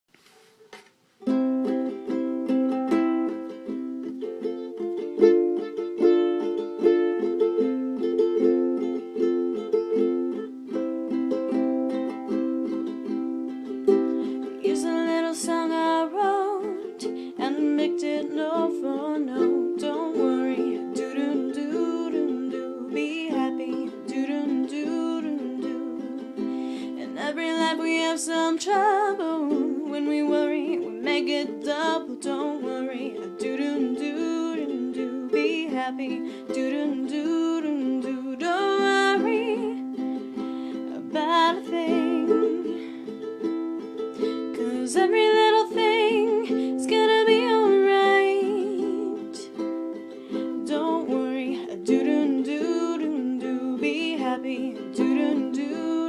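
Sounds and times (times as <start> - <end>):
ukulele strumming chords: 0.7 - 56.0
wordless voice singing: 14.3 - 43.1, 44.4 - 49.7, 50.3 - 56.0.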